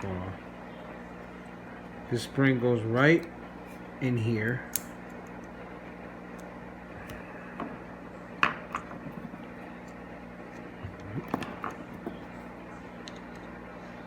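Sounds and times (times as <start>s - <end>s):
small switch parts clicking: 4.5s - 5.5s.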